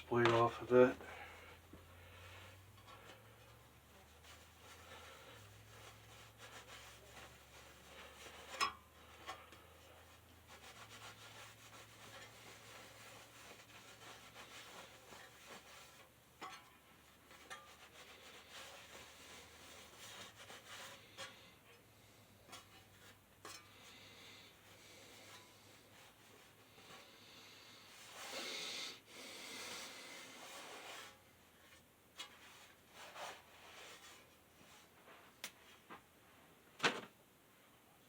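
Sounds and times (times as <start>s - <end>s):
hand rubbing fan blade: 2.3s - 21.5s.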